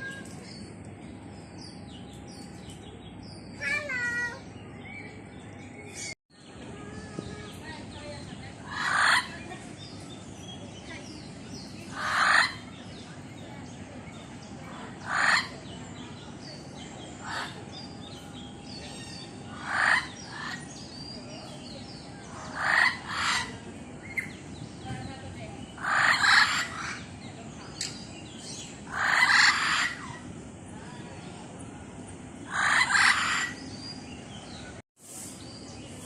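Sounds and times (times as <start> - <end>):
bird giving raspy calls: 8.6 - 9.4, 22.2 - 24.3, 25.8 - 27.1, 28.9 - 30.2, 32.5 - 33.7.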